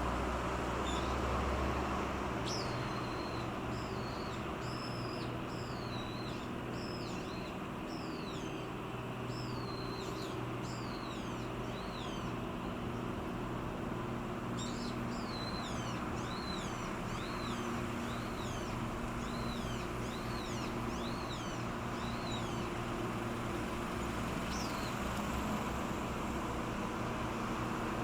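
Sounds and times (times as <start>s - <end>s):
boat engine drone: 0.0s - 28.0s
small bird chirping: 2.5s - 8.7s, 9.3s - 12.3s, 14.6s - 22.7s, 24.5s - 25.0s.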